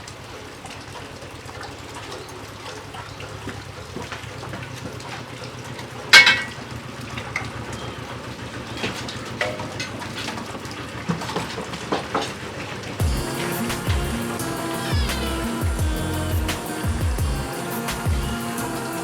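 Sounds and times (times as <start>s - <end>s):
steady noisy background: 12.7s - 19.0s
music: 13.0s - 19.0s.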